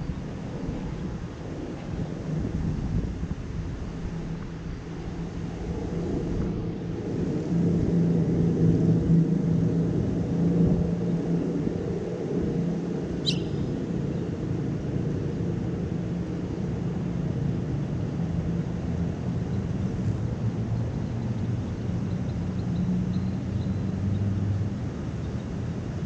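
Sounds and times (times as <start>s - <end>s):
city traffic rumble: 0.0s - 26.0s
high bird chirp: 13.2s - 13.7s.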